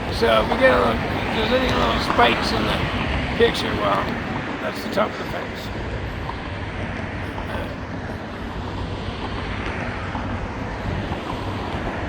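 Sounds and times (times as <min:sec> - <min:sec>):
diesel locomotive engines rumbling: 0:00.0 - 0:12.0.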